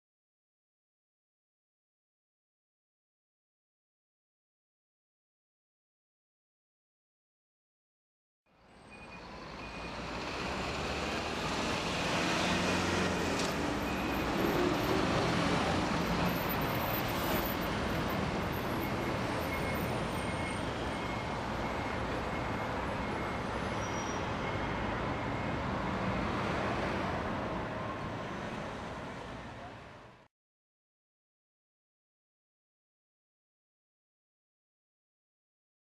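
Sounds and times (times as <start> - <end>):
road traffic rumble: 8.5 - 30.3.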